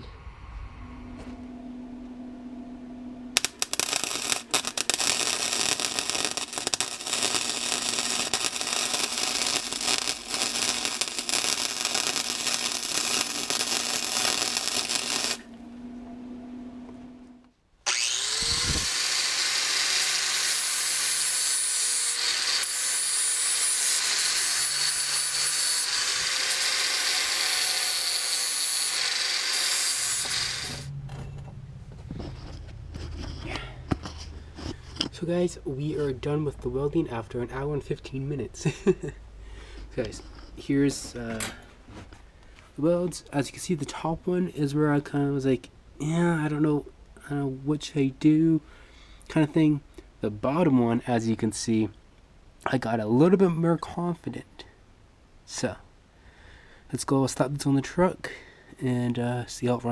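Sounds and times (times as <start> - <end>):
electrical hum: 0.0 - 19.3
arc welder crackling: 3.4 - 15.6, 17.8 - 30.9
angle grinder grinding metal: 3.4 - 15.7, 17.9 - 30.9.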